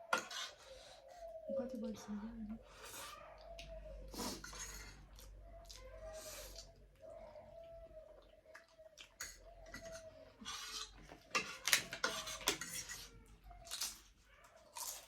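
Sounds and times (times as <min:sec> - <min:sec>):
utensils clinking on plate: 0:04.4 - 0:05.0, 0:09.1 - 0:13.1.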